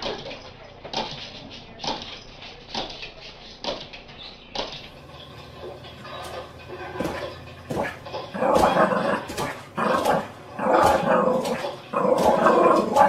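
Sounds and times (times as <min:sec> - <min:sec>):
dog jumping on tiled floor: 0:06.0 - 0:13.0.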